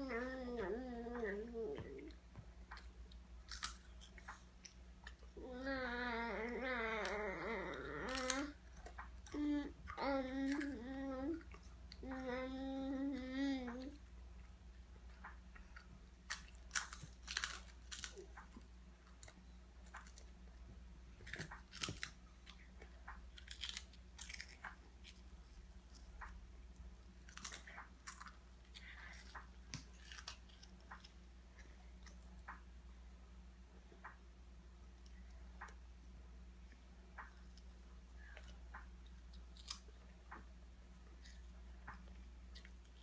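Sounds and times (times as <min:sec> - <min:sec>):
toddlers crunching crackers: 0:00.0 - 0:14.5, 0:15.6 - 0:20.6, 0:21.2 - 0:32.3, 0:37.4 - 0:40.1.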